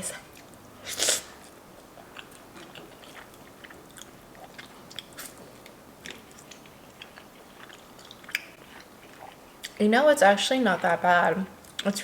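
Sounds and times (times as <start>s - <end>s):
person chewing noodles: 0.3s - 9.8s.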